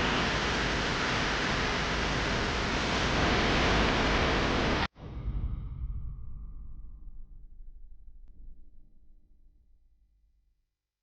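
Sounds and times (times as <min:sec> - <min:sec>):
loud steady hiss: 0:00.0 - 0:04.9.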